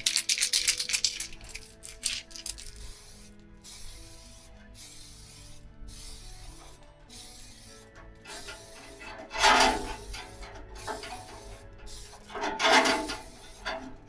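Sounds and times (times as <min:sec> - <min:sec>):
background music: 0:00.0 - 0:14.0
hissing spray: 0:00.0 - 0:14.0
scraping clatter: 0:06.5 - 0:14.0.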